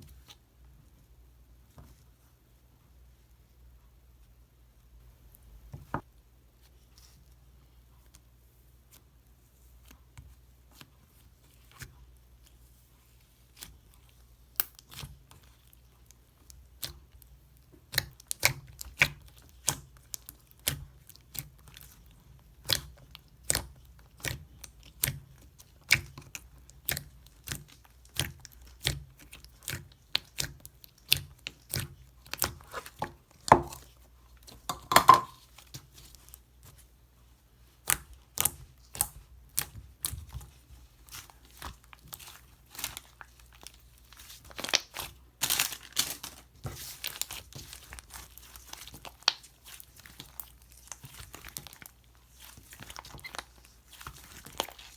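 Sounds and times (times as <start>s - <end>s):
slime clicking and popping: 44.5s - 46.1s.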